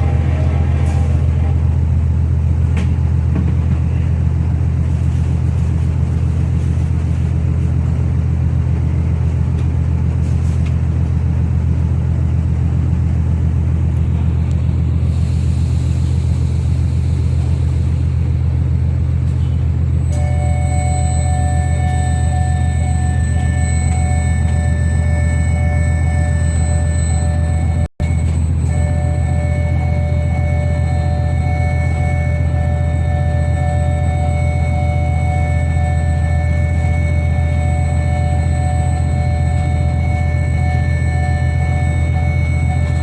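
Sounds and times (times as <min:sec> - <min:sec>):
diesel engines rumbling: 0:00.0 - 0:43.0
ringing chime tones: 0:20.0 - 0:43.0.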